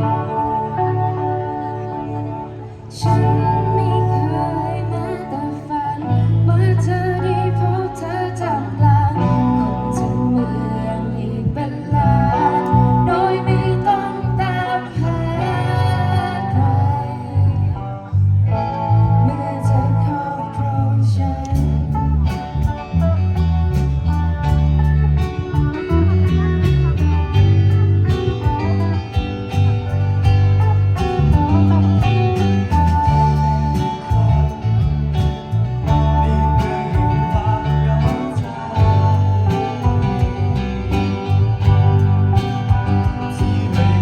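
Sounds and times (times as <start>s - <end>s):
bass: 0.0s - 44.0s
guitars: 0.0s - 44.0s
live band playing: 0.0s - 44.0s
sung melodic line: 0.0s - 44.0s
drums: 21.4s - 44.0s.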